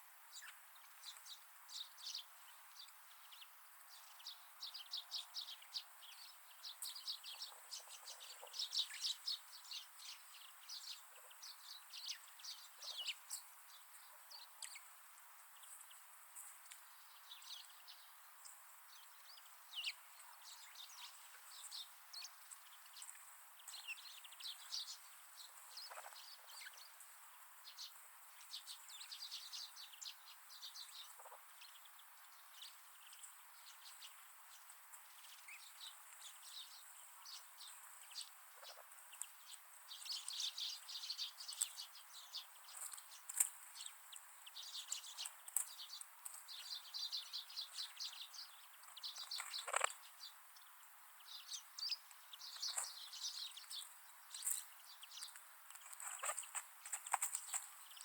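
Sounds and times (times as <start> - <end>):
faint steady hiss: 0.0 - 58.0
small birds chirping: 0.0 - 58.0.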